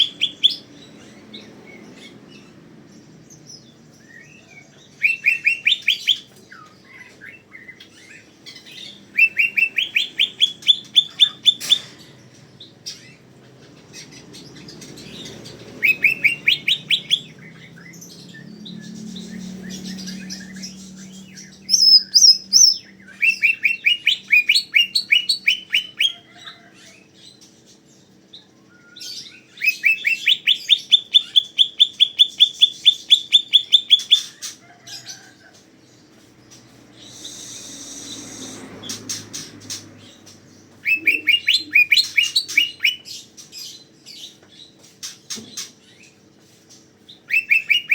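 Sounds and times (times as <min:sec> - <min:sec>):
bird singing rising notes: 0:00.0 - 0:11.7, 0:14.0 - 0:26.2, 0:36.7 - 0:43.4.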